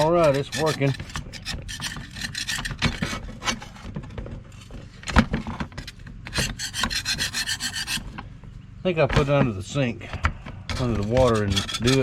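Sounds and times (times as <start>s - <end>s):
hand brush scrubbing: 10.8s - 12.0s.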